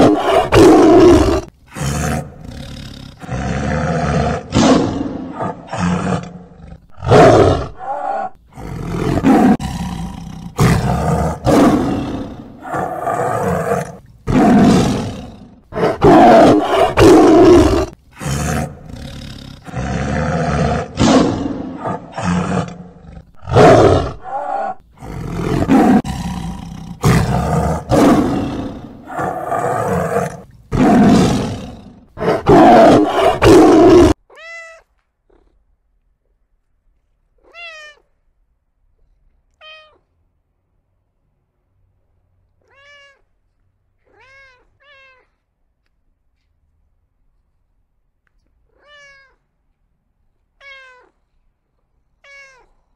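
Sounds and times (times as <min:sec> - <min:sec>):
tiger roaring: 0:00.0 - 0:34.2.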